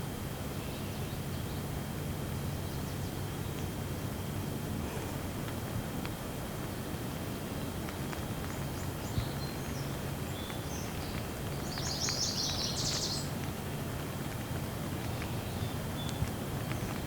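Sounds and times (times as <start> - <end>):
steady rain: 1.5 - 17.0
birds chirping: 7.2 - 13.7, 14.9 - 17.0.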